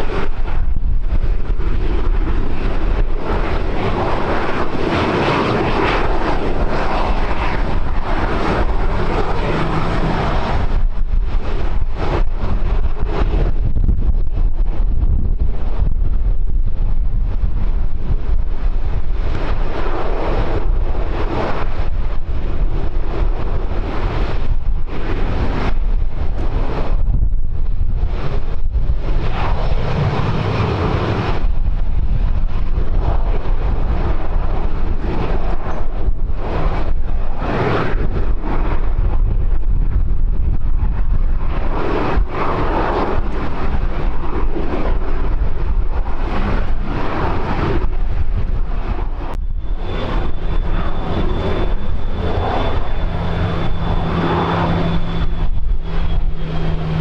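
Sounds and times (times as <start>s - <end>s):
aircraft engines running: 0.0s - 57.0s
low hum: 0.0s - 57.0s
wind buffeting microphone: 0.0s - 57.0s
thin high whine: 48.5s - 57.0s.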